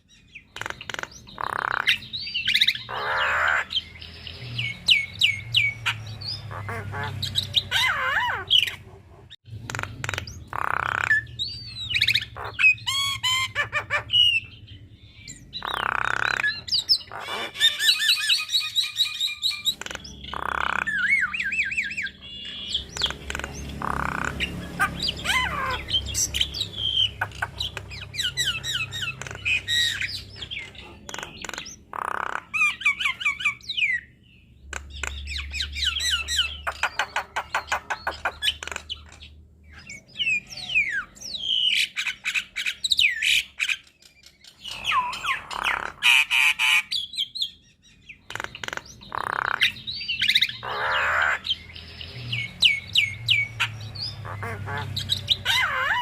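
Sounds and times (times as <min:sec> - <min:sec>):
bird whistling and squawking song: 0:00.0 - 0:08.8, 0:09.7 - 0:56.0.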